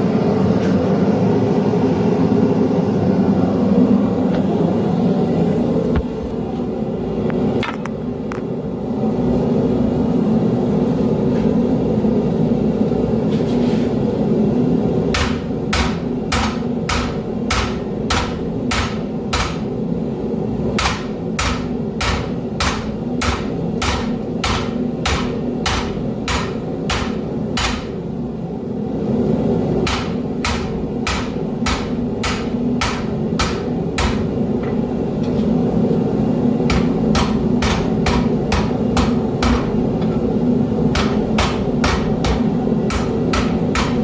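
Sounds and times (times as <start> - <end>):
hammer striking metal on anvil: 15.1 - 19.7, 20.8 - 28.0, 29.9 - 34.4, 36.7 - 40.3, 40.9 - 44.0.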